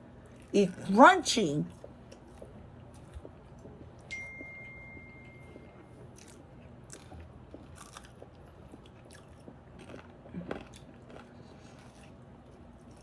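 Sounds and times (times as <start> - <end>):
chewing crisp fried food: 0.0 - 4.1, 4.7 - 13.0
faint thin ringing tone: 4.1 - 6.0.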